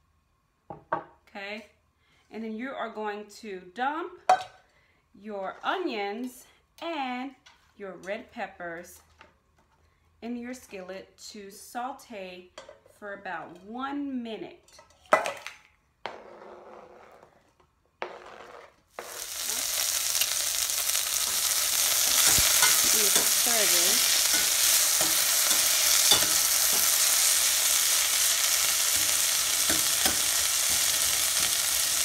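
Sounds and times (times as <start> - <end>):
vegetables sizzling in hot oil: 19.0 - 32.0.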